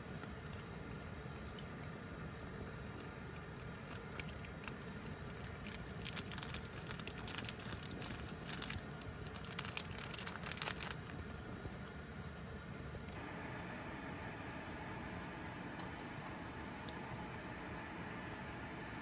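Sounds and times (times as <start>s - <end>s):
crinkling and rustling: 0.0s - 2.0s, 2.7s - 12.0s
small irregular crackles: 0.0s - 12.0s
low background hum: 0.0s - 19.0s.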